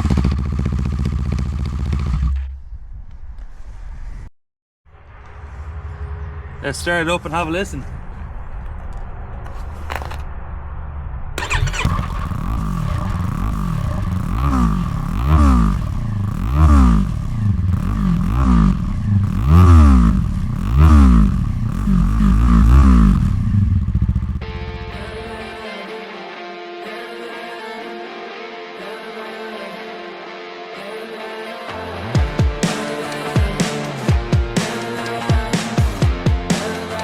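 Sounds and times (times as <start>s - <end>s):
motorcycle engine starting and revving: 0.0s - 3.1s, 11.4s - 25.6s
music: 24.4s - 37.0s.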